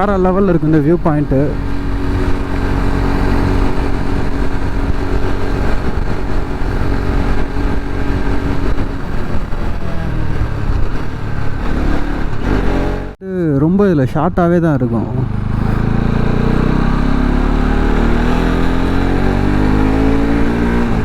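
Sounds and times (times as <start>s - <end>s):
wind rumble on microphone: 0.0s - 13.1s
motorcycle engine running: 0.0s - 13.2s, 15.1s - 21.0s.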